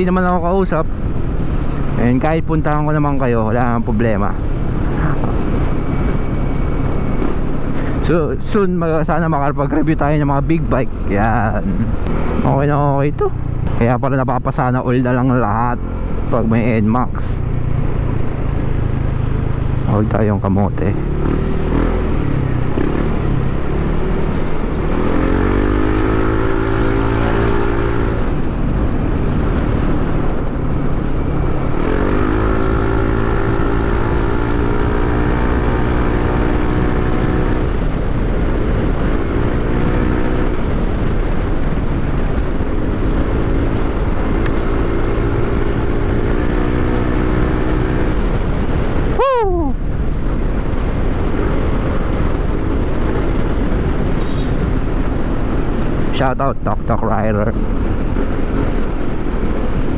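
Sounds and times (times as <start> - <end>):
wind on microphone: 0.0 - 59.9
scooter engine accelerating: 20.8 - 28.5.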